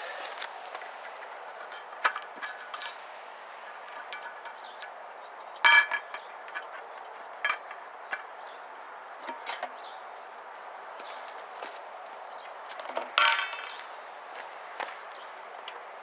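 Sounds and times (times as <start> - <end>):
metallic clinks and taps: 3.7 - 5.0, 5.6 - 6.8, 13.2 - 13.8.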